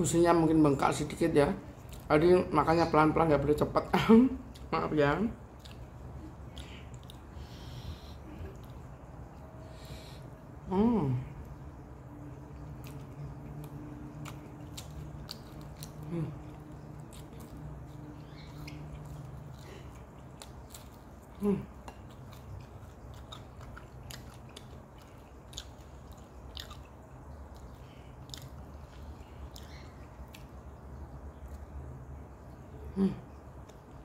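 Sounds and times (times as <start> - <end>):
low steady hum: 0.0 - 34.0
chewing and wet mouth clicks: 5.5 - 7.6, 12.2 - 32.6.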